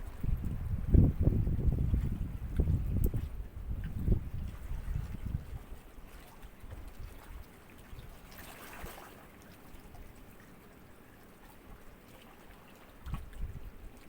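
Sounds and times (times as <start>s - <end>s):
small waves lapping: 1.6s - 14.0s.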